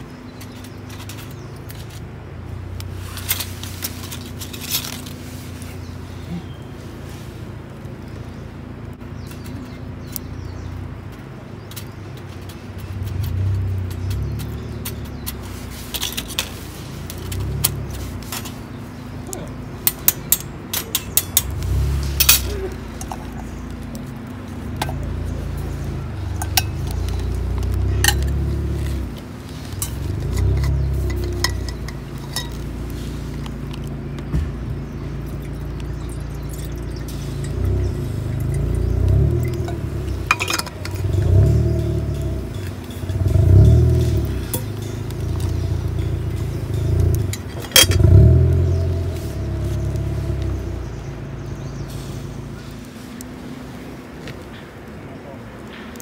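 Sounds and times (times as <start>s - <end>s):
metal cookware clinking: 26.4s - 27.3s, 27.9s - 28.5s, 29.7s - 32.8s, 35.4s - 48.5s.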